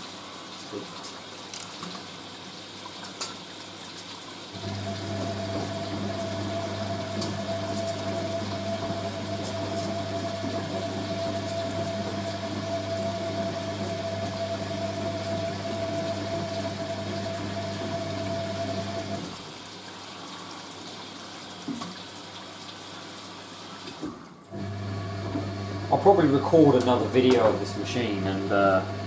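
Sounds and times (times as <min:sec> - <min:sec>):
washing machine drain pump humming: 0:04.5 - 0:20.0, 0:23.8 - 0:29.0.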